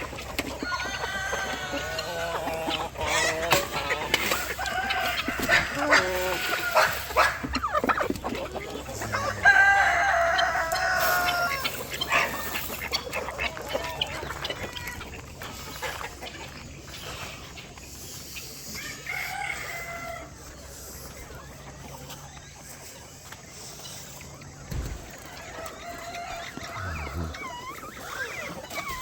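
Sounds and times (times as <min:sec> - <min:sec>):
rooster crowing: 0:00.6 - 0:02.4, 0:09.0 - 0:11.8, 0:18.8 - 0:20.4, 0:24.9 - 0:28.3.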